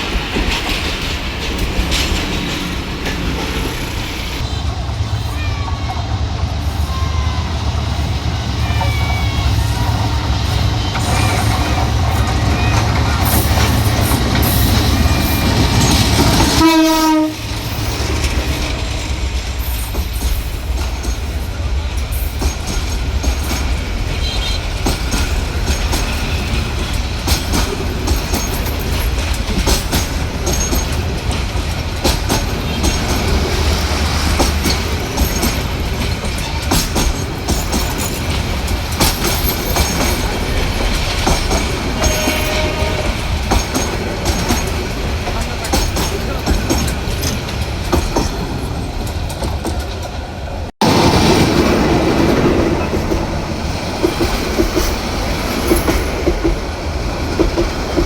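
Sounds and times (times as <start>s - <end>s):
wheels clicking over rail joints: 0.0s - 4.5s, 10.6s - 58.0s
train rumbling: 0.0s - 58.0s
train horn: 15.0s - 17.8s, 24.1s - 24.8s, 42.0s - 43.3s.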